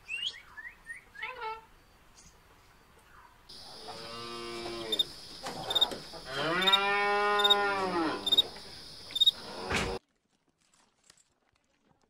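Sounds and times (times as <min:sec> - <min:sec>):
cow mooing: 0:03.6 - 0:08.6, 0:09.3 - 0:10.0
faint high chirping: 0:07.4 - 0:07.6, 0:08.2 - 0:09.4.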